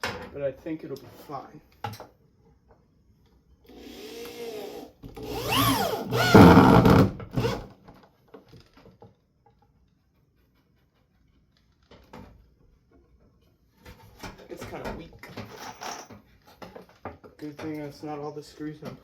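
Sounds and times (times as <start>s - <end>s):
electric drill driving a screw: 3.7s - 7.7s.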